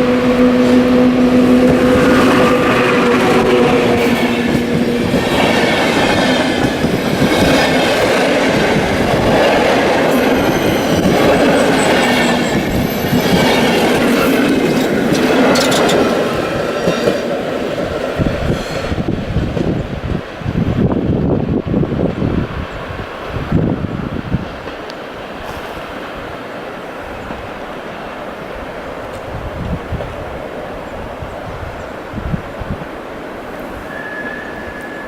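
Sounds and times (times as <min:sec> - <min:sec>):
train wheels clicking over rail joints: 0:01.4 - 0:20.3
high wheel squeal: 0:10.1 - 0:16.1, 0:33.8 - 0:35.0.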